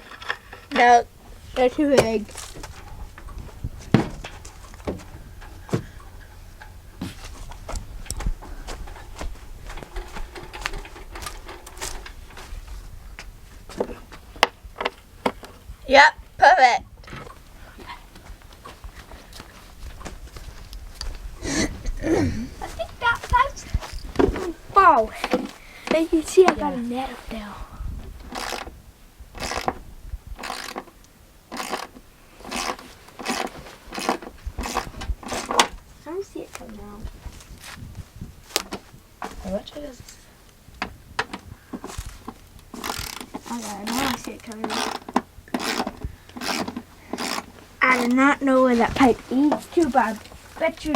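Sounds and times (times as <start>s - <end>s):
hard parts clicking and knocking: 0.0s - 15.7s, 28.2s - 28.8s, 29.4s - 29.8s, 30.4s - 35.8s, 40.8s - 48.3s
rhythmic rasping scraping: 0.0s - 16.1s, 17.2s - 27.6s, 28.3s - 28.7s, 30.4s - 37.9s, 41.5s - 50.9s.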